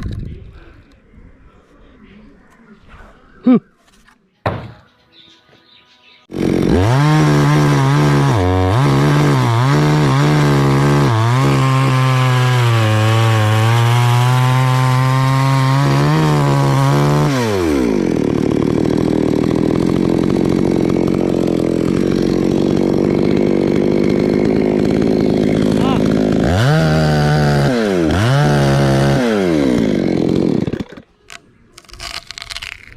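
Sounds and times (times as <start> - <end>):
chainsaw revving: 6.3 - 31.1.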